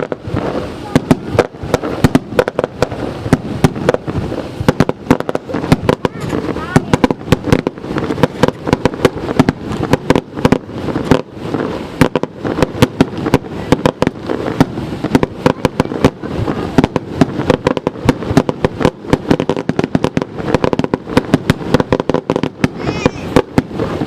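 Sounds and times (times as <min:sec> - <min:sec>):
fireworks bangs and cracks: 0:00.0 - 0:24.0.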